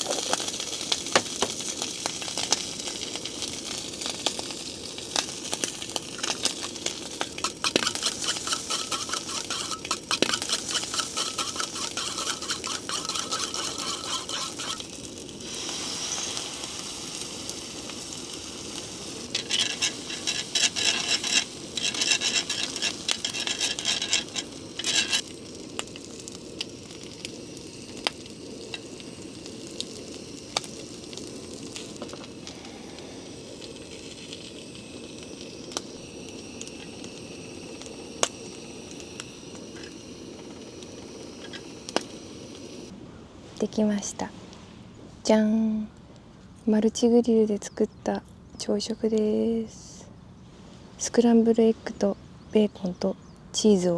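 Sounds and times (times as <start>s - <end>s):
bacon and eggs sizzling: 0.0s - 42.9s
utensil scraping a pan: 6.0s - 16.4s, 19.0s - 25.2s.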